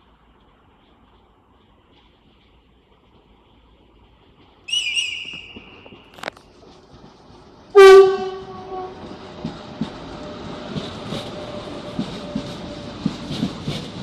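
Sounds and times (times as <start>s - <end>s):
train rail noise: 0.0s - 14.0s
shrill whistle blast: 4.7s - 6.2s
train horn blast: 7.7s - 9.1s.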